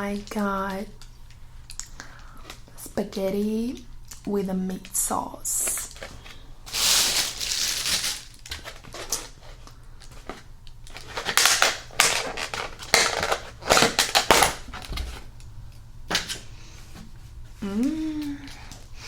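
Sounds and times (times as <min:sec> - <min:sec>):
food packaging crackling and crunching: 0:05.6 - 0:15.3.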